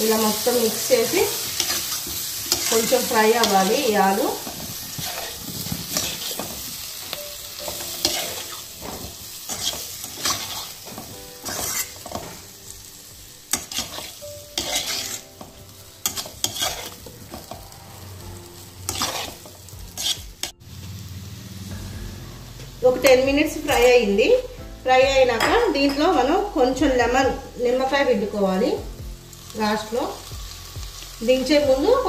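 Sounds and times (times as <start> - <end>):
food sizzling in oil: 0.0 - 32.0
metal spoon scraping a pan: 0.3 - 6.9, 7.7 - 12.5, 13.5 - 17.7, 18.8 - 20.6.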